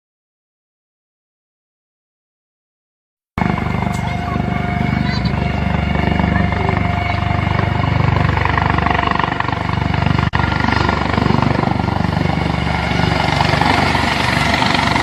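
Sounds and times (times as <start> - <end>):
helicopter rotor and engine: 3.4 - 15.0.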